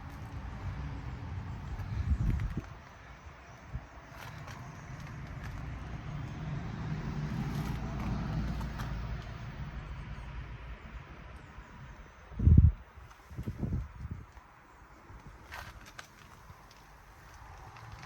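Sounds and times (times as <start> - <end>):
car engine driving past: 5.5 - 10.3.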